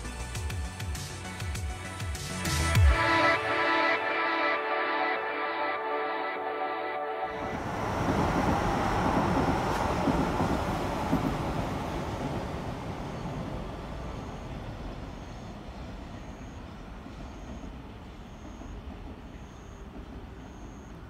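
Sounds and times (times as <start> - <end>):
electric train rumbling: 0.0 - 21.0.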